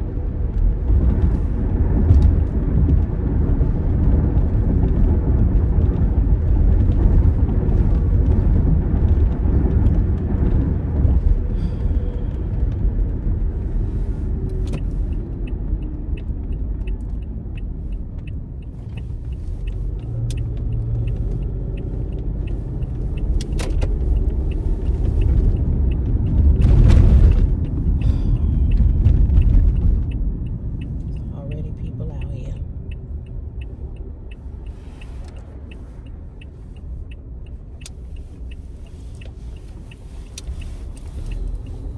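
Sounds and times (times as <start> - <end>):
car engine and road rumble: 0.0 - 41.9
light even ticking: 14.4 - 26.7.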